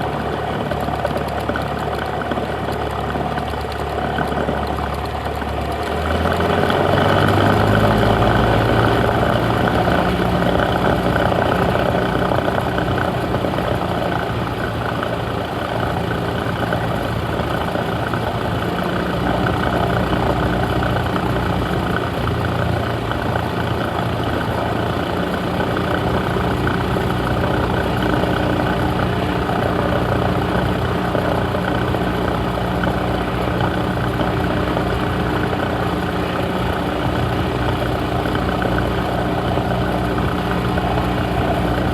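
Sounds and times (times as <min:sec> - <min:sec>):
light aircraft engine droning: 0:00.0 - 0:41.9.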